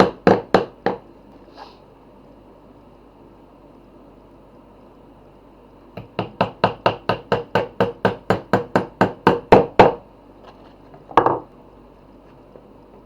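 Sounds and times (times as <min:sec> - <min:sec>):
hammer striking wood: 0:00.0 - 0:01.0, 0:06.0 - 0:10.0.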